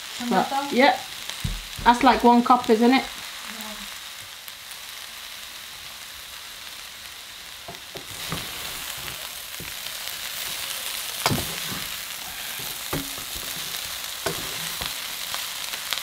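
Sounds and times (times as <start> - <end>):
food sizzling in a wok: 0.0 - 16.0
wooden utensils knocking on pan: 1.4 - 2.5, 11.2 - 11.9, 12.6 - 14.9.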